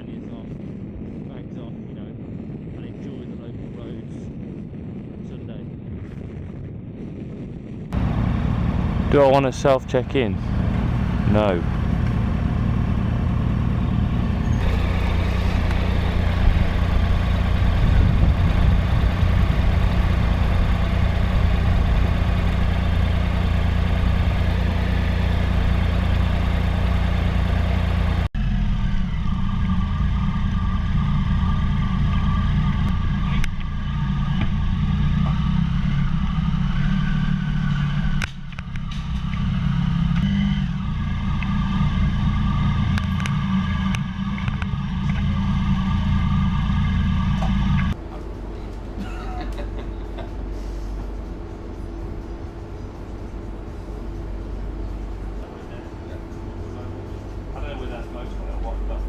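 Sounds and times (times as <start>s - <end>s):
wind and road noise: 2.1s - 48.0s
motorcycle engine running: 8.0s - 28.4s.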